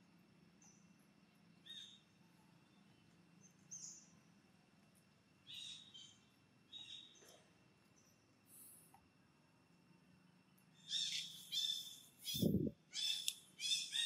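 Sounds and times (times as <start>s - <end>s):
steady low background noise: 0.0s - 14.0s
faint high-pitched bird chirps: 0.5s - 4.4s, 5.4s - 8.8s, 10.7s - 14.0s.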